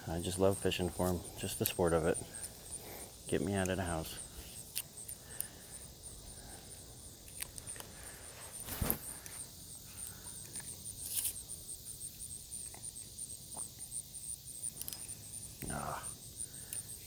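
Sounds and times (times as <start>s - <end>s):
insects chirring in high trill: 0.0s - 17.0s
short high rustle: 8.4s - 9.4s.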